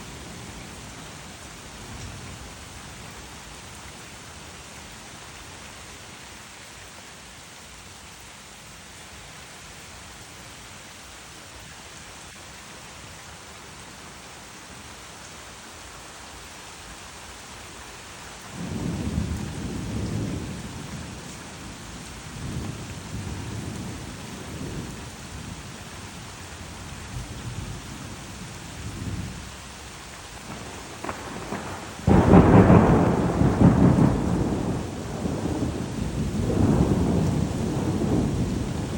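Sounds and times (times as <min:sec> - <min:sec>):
steady rain: 0:00.0 - 0:38.9
loud thunderclap: 0:30.5 - 0:38.9
thunder rumbling: 0:30.5 - 0:38.9.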